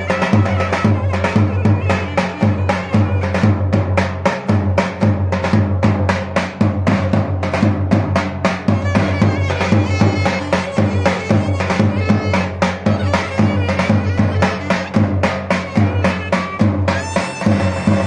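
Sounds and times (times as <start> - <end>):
clarinet melody: 0.0 - 3.4, 8.8 - 18.0
drum strokes: 0.0 - 18.0.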